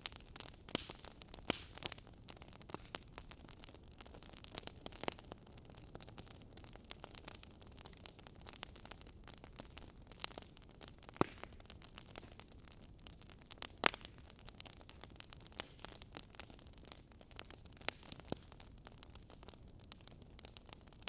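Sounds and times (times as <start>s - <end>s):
sharp fire pops: 0.0s - 3.4s, 9.3s - 18.6s
wood fire crackling: 0.0s - 21.0s.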